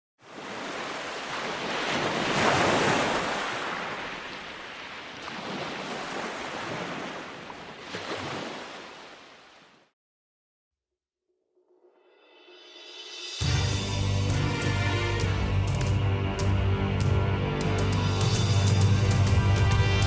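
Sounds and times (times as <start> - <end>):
river water rushing: 0.3 - 9.7.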